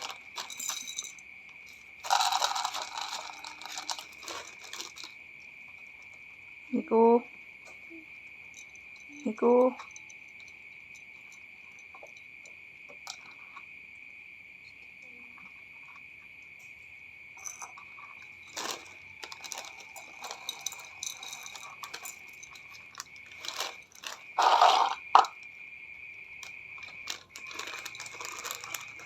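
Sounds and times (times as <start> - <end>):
cats crunching food: 0.0 - 6.2, 17.9 - 29.0
cricket trill: 0.0 - 29.0.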